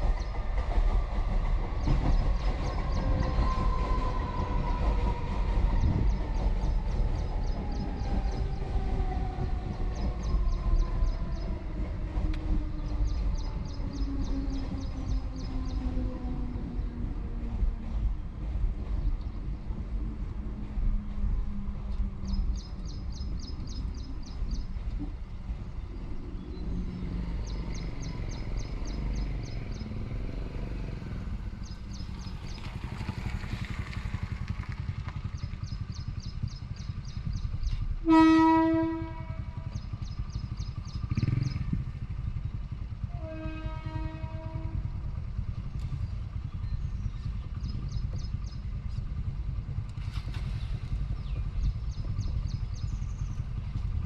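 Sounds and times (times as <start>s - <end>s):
low rumble: 0.0s - 54.0s
train horn blowing: 38.0s - 39.9s, 43.0s - 45.0s.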